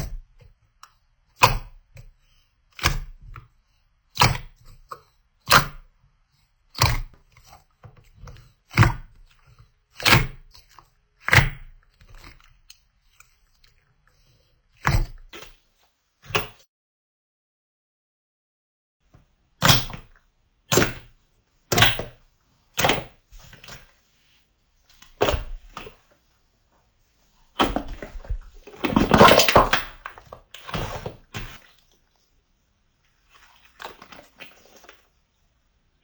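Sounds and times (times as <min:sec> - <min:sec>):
slime squelching and squishing: 0:27.4 - 0:32.0.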